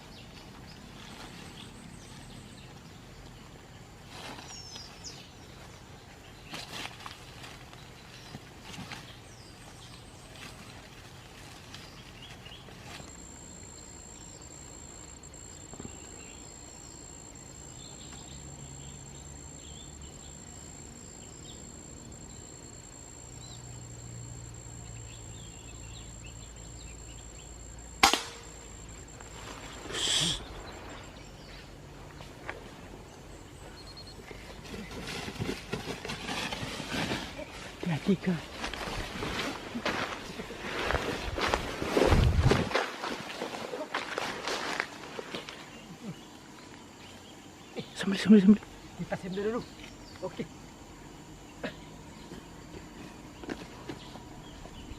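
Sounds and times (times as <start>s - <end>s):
noisy rustling: 0.0s - 45.8s
faint high whine: 0.0s - 54.9s
rifle shot: 28.0s - 28.5s.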